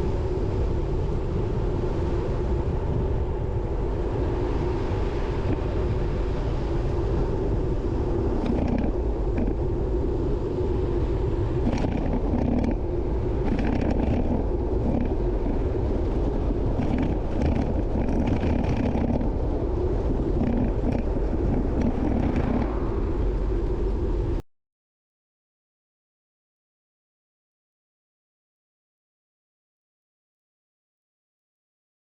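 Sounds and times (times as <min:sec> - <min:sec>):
road and traffic noise: 0:00.0 - 0:24.4
wind rumbling on microphone: 0:00.0 - 0:24.4.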